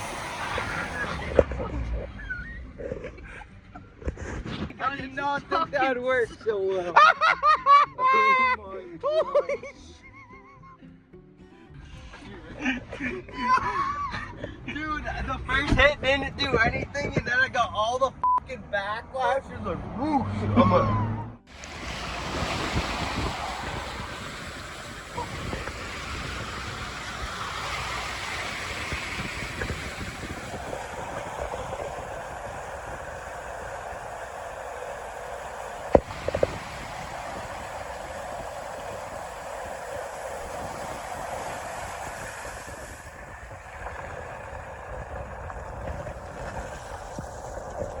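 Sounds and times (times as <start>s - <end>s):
water rushing: 0.0s - 2.4s, 21.5s - 48.0s
wind rushing: 0.0s - 3.4s, 21.5s - 48.0s
wind buffeting microphone: 0.0s - 4.8s, 15.5s - 17.4s, 21.5s - 48.0s.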